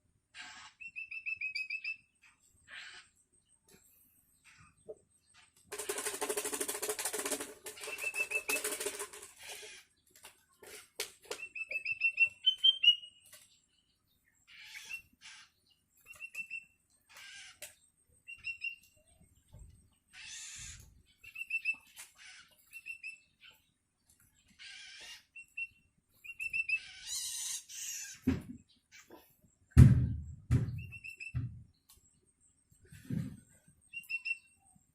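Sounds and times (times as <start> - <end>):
bird chicks begging calls: 14.4 - 19.0, 19.9 - 23.7, 24.4 - 28.2.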